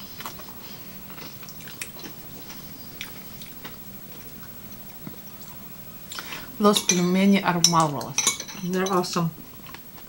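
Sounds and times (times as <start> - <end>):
chewing with mouth clicks: 0.0 - 6.4
low steady hum: 0.0 - 10.0.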